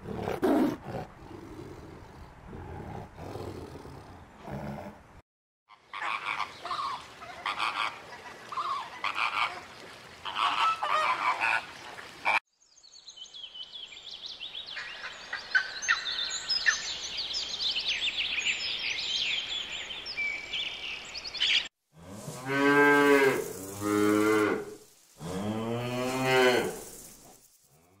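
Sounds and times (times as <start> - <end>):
flamingos honking and calling: 5.7 - 12.4
small birds chirping: 12.6 - 21.7.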